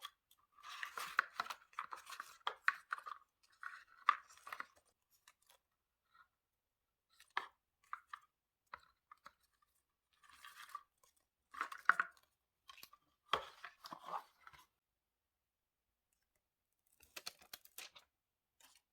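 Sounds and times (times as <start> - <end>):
paper crinkling and rustling: 16.9 - 18.9.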